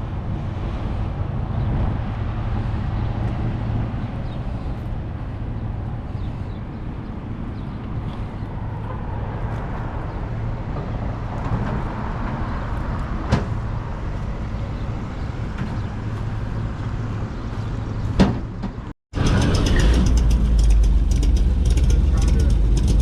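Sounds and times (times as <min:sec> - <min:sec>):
vehicle engine idling: 0:19.2 - 0:23.0.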